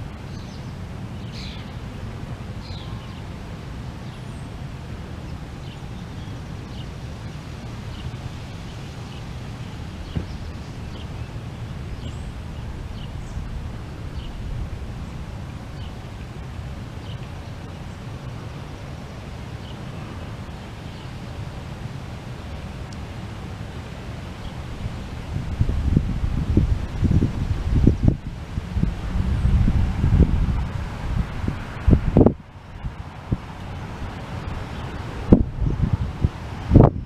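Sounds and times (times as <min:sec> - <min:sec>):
small birds chirping: 0:00.1 - 0:01.8, 0:05.2 - 0:16.4, 0:17.0 - 0:18.1
low rumble: 0:24.9 - 0:32.4.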